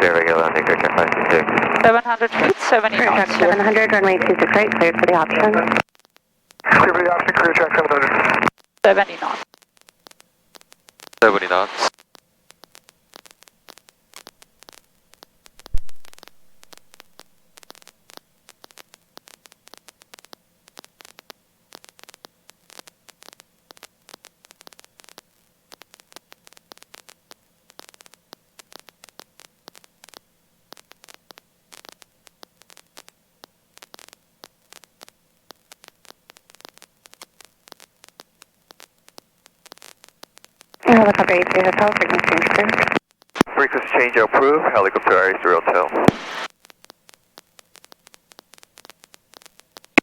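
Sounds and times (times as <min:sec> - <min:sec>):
faint steady hum: 0:00.0 - 0:09.4, 0:40.8 - 0:46.5
crackling static: 0:00.0 - 0:50.0.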